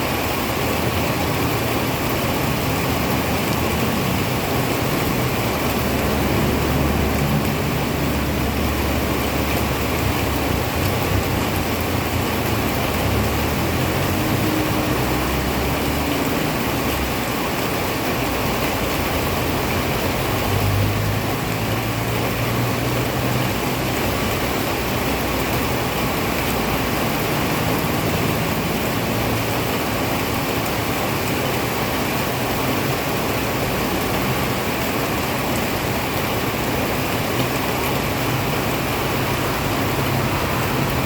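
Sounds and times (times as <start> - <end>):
heavy rain falling: 0.0 - 41.0
vehicle engine rumble: 0.0 - 41.0.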